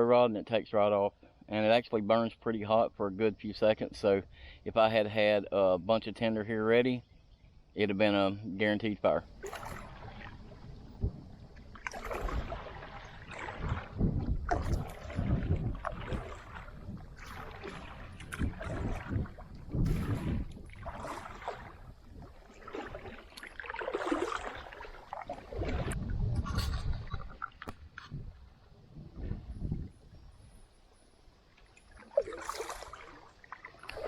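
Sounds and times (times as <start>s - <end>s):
paddle strokes splashing: 9.3s - 28.1s, 31.6s - 34.0s
wind on microphone: 9.4s - 23.1s, 25.3s - 30.6s.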